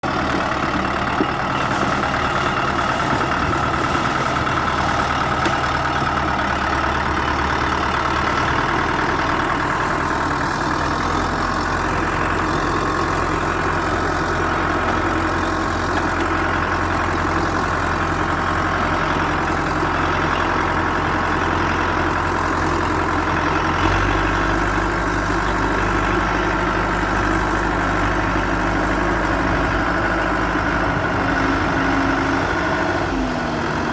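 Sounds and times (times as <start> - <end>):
bulldozer diesel engine running: 0.0 - 33.9.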